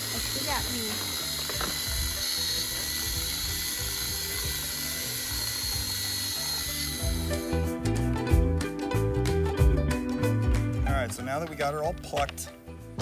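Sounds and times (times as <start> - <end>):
mechanical chicken plucker whirring: 0.0 - 7.3
music: 0.0 - 13.0.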